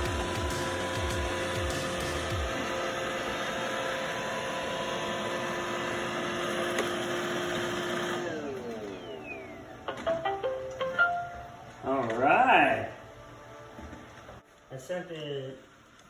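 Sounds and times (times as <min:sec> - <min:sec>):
robot vacuum motor whirring: 0:00.0 - 0:10.1.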